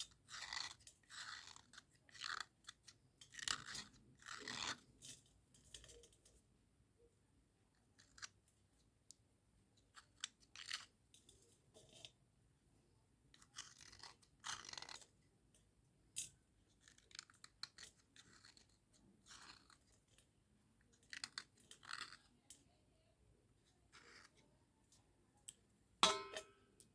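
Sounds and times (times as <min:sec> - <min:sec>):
slate pencils scraping and crunching: 0:00.0 - 0:06.4, 0:09.9 - 0:12.1, 0:13.4 - 0:15.2, 0:16.7 - 0:22.8, 0:23.8 - 0:25.0.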